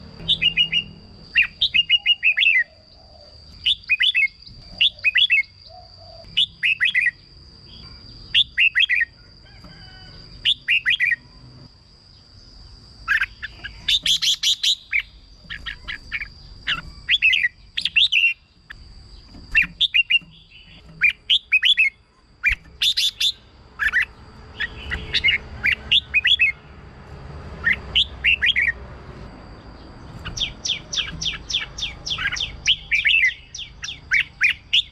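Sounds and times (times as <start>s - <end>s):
bird chirping song: 0.0s - 34.9s.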